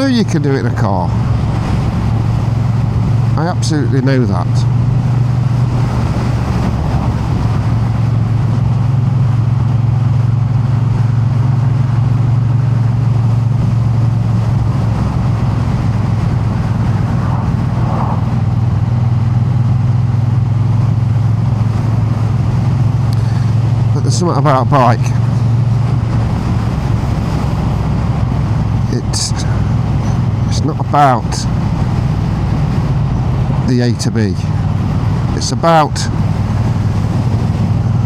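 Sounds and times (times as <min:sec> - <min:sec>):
motorcycle engine droning: 0:00.0 - 0:38.0.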